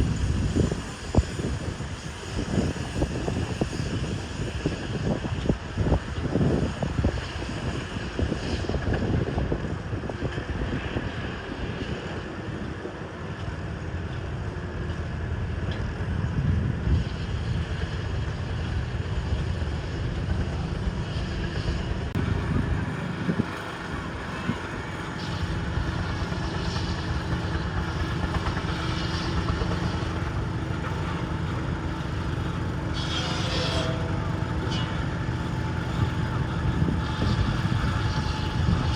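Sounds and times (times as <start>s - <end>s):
wind rumbling on microphone: 0.0s - 38.9s
garden tractor engine running: 22.0s - 38.9s.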